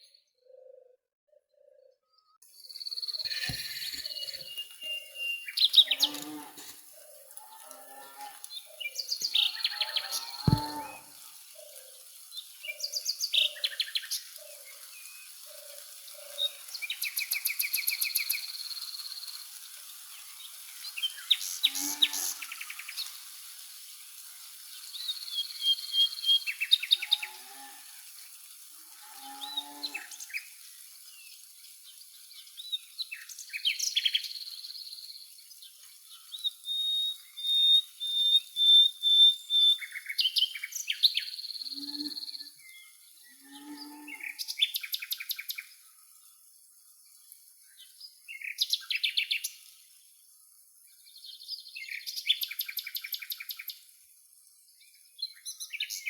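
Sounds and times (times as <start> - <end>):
songbirds singing and calling: 0.0 - 23.2, 31.1 - 46.4, 50.9 - 53.8, 54.5 - 56.0.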